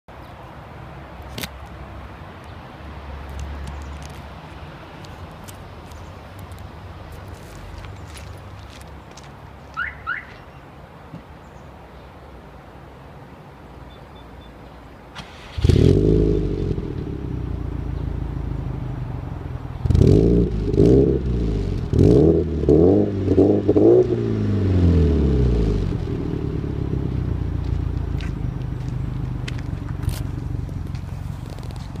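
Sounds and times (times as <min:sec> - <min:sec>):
car engine starting and revving: 0:15.2 - 0:28.0.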